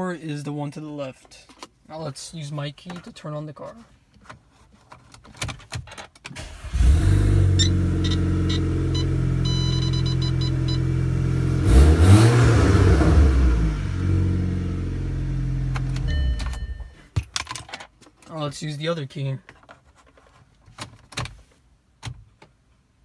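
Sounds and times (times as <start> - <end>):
car engine starting and idling: 6.3 - 17.0
engine revving: 6.6 - 15.8
dashboard chime beeps: 7.6 - 10.9, 16.0 - 17.1.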